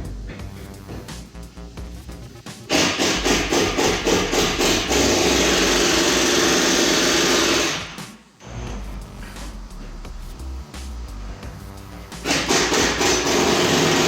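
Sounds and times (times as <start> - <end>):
handheld power tool running: 2.7 - 8.9, 12.2 - 14.0.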